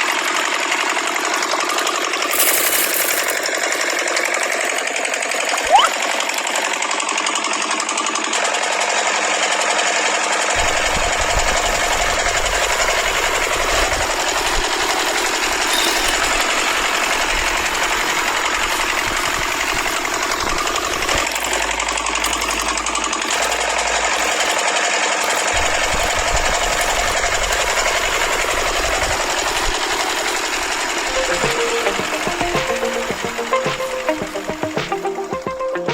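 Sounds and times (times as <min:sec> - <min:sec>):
fast mechanical rattle: 0:00.3 - 0:08.4, 0:12.4 - 0:35.0.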